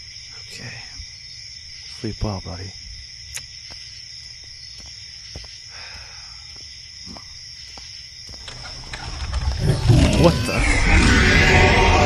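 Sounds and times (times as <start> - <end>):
low hum: 8.5 - 12.0
high-pitched drone: 9.9 - 12.0.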